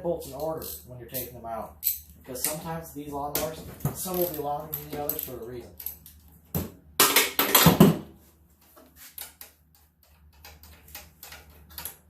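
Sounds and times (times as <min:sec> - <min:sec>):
metal tools rattling clatter: 0:03.8 - 0:06.2.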